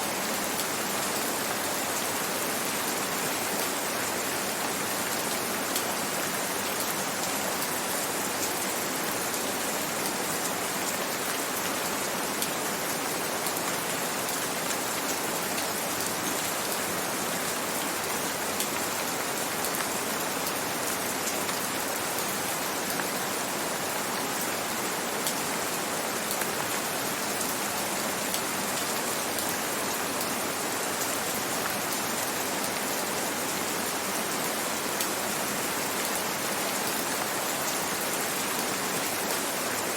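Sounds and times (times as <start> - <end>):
gentle rain hiss: 0.0 - 39.9.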